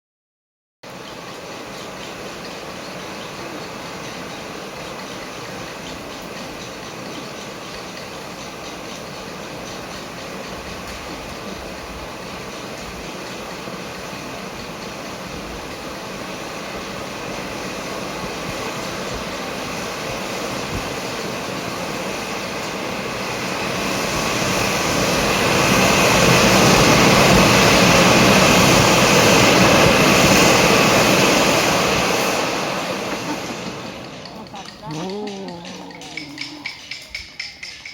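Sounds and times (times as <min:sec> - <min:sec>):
firework spraying sparks with hiss: 0:15.9 - 0:34.2.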